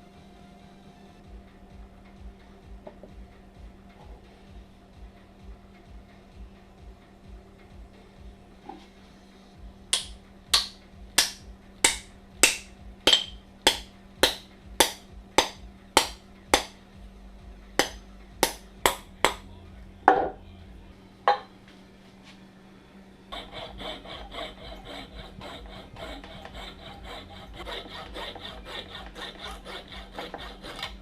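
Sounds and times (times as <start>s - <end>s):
hammer blows ringing: 10.0s - 16.8s, 17.8s - 19.5s.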